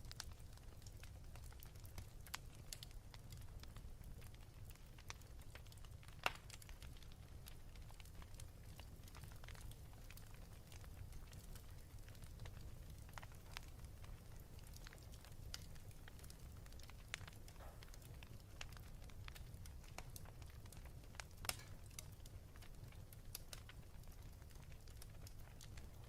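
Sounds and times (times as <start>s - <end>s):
fire snapping: 0.0s - 26.0s
wood fire crackling: 0.0s - 26.0s.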